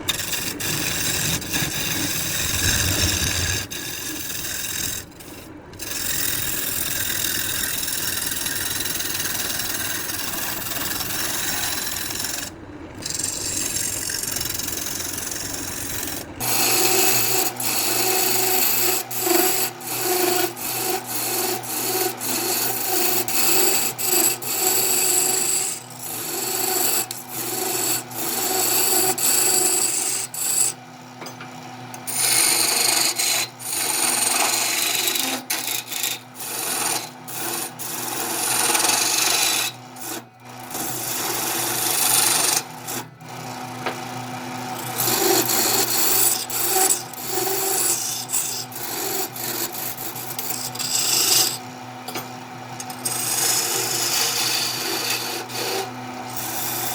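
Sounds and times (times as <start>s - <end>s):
steady hum: 0.0s - 16.5s
tool scraping spinning wood: 0.0s - 30.8s, 32.0s - 56.9s
wood lathe turning: 0.0s - 30.8s, 31.9s - 52.2s, 52.8s - 56.9s.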